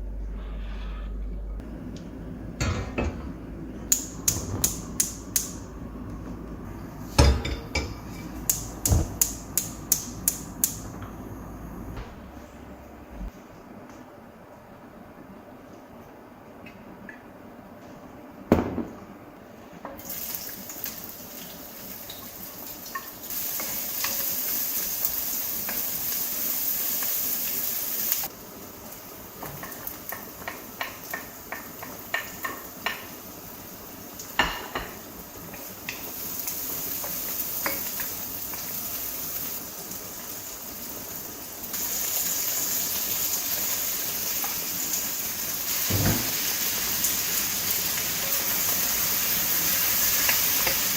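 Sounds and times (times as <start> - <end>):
thump: 12.0 - 12.4, 45.9 - 46.3
tap water running into sink: 45.9 - 46.4.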